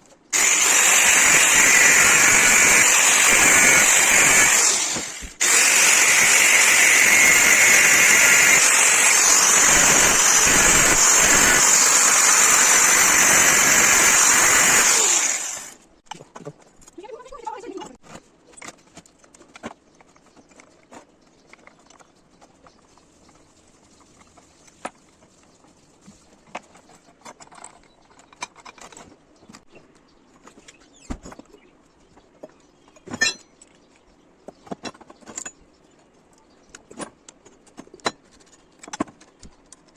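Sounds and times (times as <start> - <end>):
loud power tool running: 0.4 - 15.8
sharp metal clank: 33.1 - 33.5.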